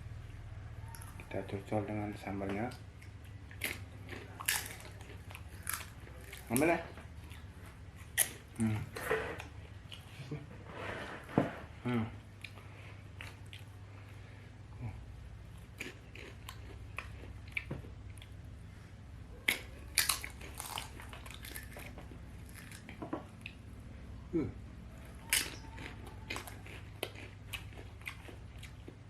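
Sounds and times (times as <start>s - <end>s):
potatoes being chewed: 0.8s - 1.4s, 2.6s - 10.4s, 12.4s - 14.9s, 15.5s - 18.4s, 19.4s - 23.7s, 24.9s - 29.0s.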